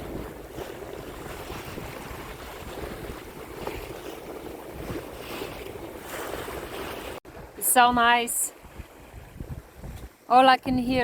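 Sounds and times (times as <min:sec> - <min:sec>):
sea waves splashing: 0:00.0 - 0:11.0
wind on microphone: 0:00.0 - 0:11.0.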